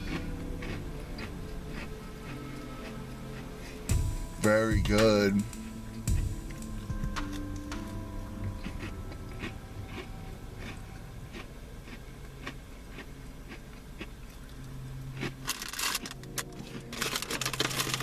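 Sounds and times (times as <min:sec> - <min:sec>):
person chewing crunchy cookie: 0:00.0 - 0:03.8, 0:08.6 - 0:18.0.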